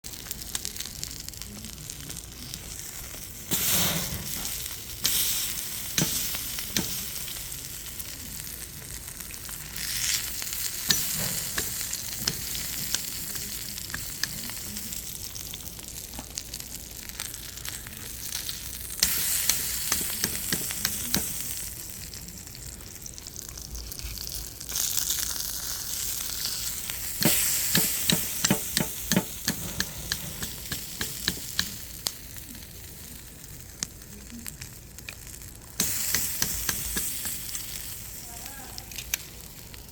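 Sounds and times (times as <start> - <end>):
meat sizzling on a grill: 0.0 - 39.9
sharp pops and crackles: 3.4 - 7.7, 8.8 - 21.9, 26.0 - 32.6, 33.4 - 38.1.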